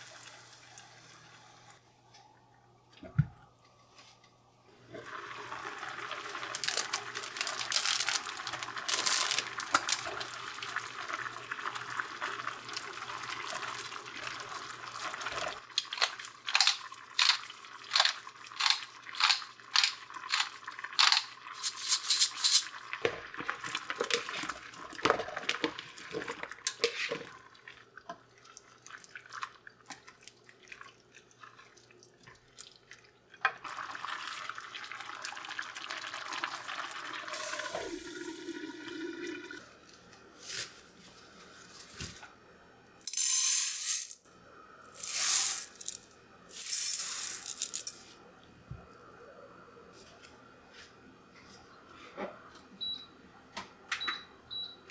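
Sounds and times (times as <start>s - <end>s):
tap water running into sink: 5.2s - 21.3s.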